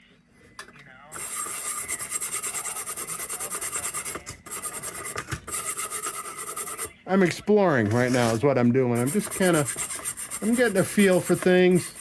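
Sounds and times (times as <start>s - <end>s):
hand scrubbing on metal: 1.2s - 6.9s, 7.9s - 12.0s.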